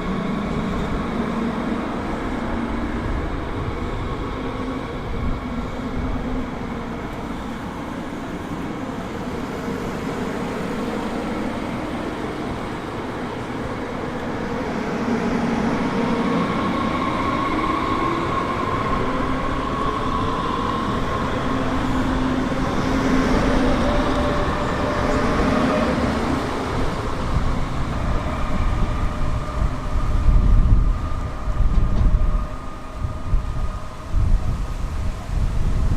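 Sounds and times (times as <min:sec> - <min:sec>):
train running: 0:00.0 - 0:35.9.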